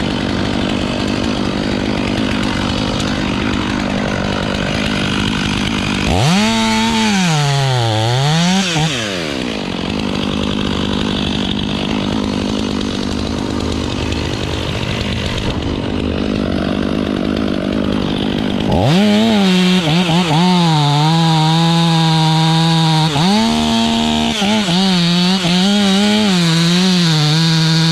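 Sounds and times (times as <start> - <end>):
chainsaw cutting wood: 0.0 - 27.9.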